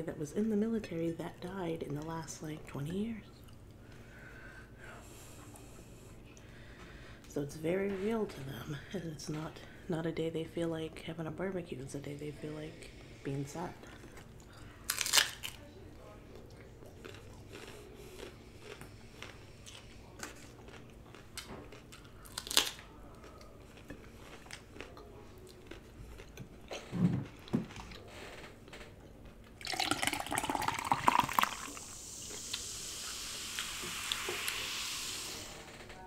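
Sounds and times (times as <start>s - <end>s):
steady hiss: 31.6s - 35.7s.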